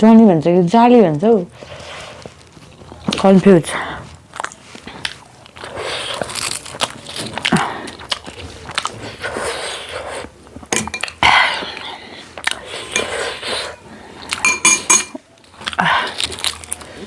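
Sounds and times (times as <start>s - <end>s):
chewing and eating: 1.5s - 14.5s, 15.1s - 17.0s
metal dishware clinking: 10.8s - 11.2s, 14.4s - 15.2s.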